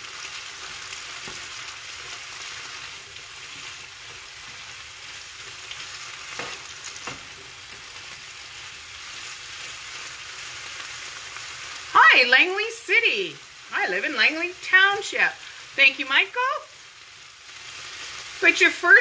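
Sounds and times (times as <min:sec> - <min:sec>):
food sizzling in a pan: 0:00.0 - 0:19.0
spatula scraping a pan: 0:00.2 - 0:11.1.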